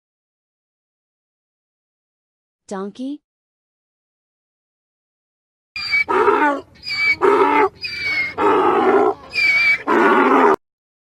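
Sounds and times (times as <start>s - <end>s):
donkey braying: 5.8s - 10.6s.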